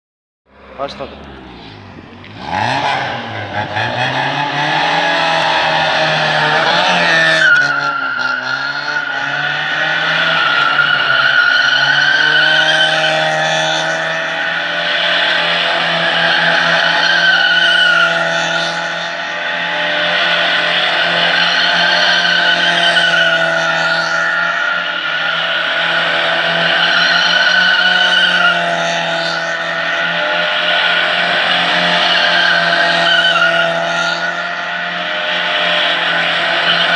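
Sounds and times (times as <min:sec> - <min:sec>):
car engine at steady revs: 0:00.6 - 0:10.8
tyre squeal: 0:20.8 - 0:29.9, 0:30.5 - 0:34.4.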